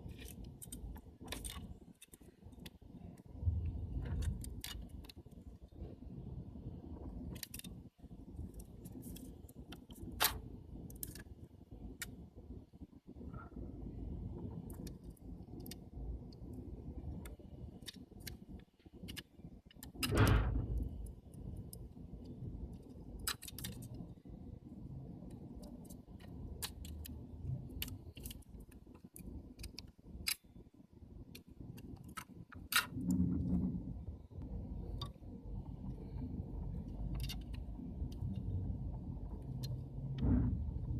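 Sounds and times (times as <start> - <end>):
steady low rumble: 0.0 - 40.9
small lens parts clicking: 25.3 - 30.4, 36.7 - 38.5
heavy low thud: 40.2 - 40.9.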